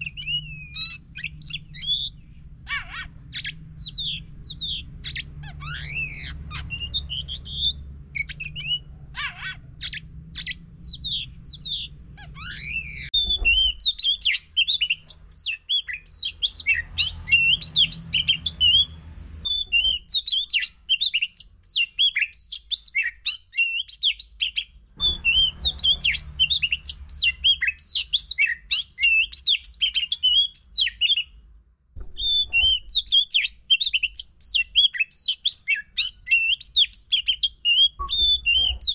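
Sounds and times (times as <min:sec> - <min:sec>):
low hum: 0:00.0 - 0:15.3, 0:24.8 - 0:28.3
bird singing: 0:00.0 - 0:38.9.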